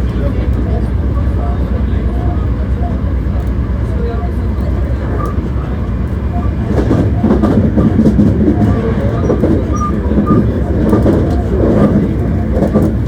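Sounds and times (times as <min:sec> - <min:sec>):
train wheels rumbling on rail: 0:00.0 - 0:13.0
track clicks: 0:04.6 - 0:13.0.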